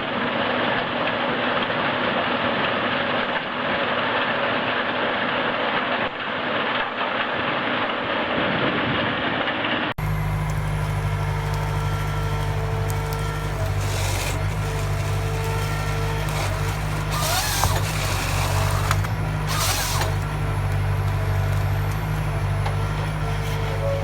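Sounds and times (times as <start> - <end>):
heavy machine engine humming: 10.0 - 24.0
wood chipper grinding wood: 10.0 - 24.0.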